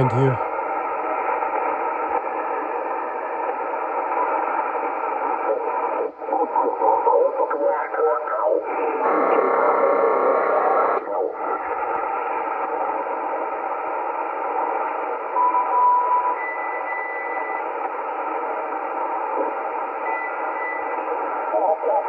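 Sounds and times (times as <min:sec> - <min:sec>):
harsh radio signal tones: 0:00.0 - 0:00.6, 0:16.4 - 0:22.0
radio static hiss: 0:00.0 - 0:15.4, 0:17.3 - 0:22.0.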